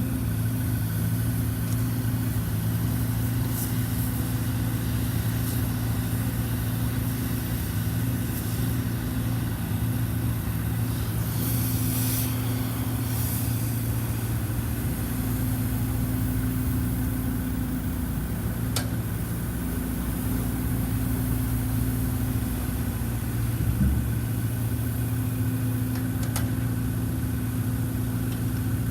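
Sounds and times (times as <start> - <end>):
small diesel engine running: 0.0 - 28.9
short hiss: 10.8 - 14.4
low thud: 23.5 - 24.4.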